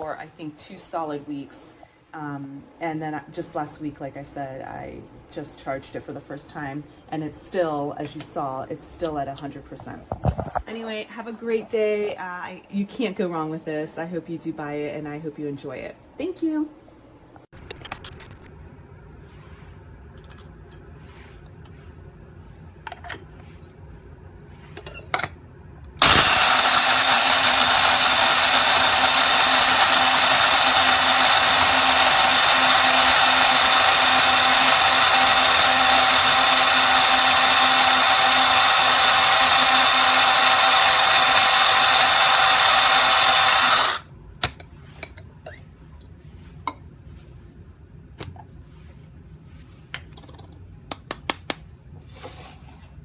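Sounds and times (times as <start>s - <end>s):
coffee grinder motor whir: 17.7s - 18.5s, 26.0s - 44.0s.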